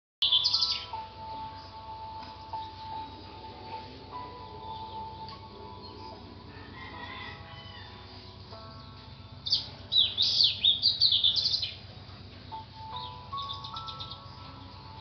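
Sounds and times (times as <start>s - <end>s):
bird chirping: 0.2s - 1.8s, 2.5s - 6.3s, 8.5s - 15.0s
soft background music: 0.2s - 15.0s.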